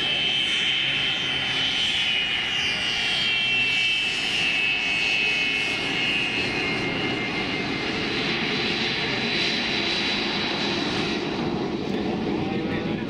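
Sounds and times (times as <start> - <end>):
high jet engine whine: 0.0 - 13.0
jet engine roaring: 0.0 - 13.0.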